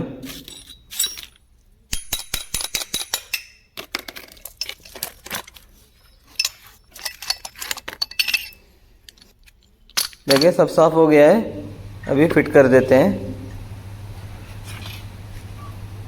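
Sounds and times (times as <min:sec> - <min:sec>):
small metal parts clinking: 0:00.3 - 0:10.8.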